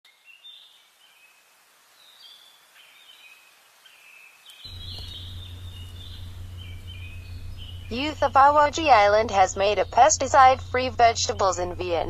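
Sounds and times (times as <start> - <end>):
faint outdoor background noise: 0.1 - 12.0
birds chirping: 2.0 - 12.0
low steady hum: 4.7 - 12.0.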